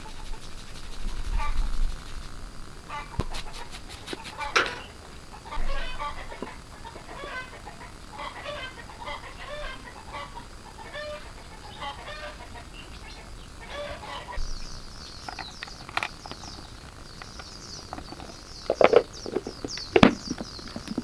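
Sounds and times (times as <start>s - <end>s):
chickens clucking: 2.9s - 14.5s, 15.2s - 21.0s
sharp knocks: 18.0s - 21.0s.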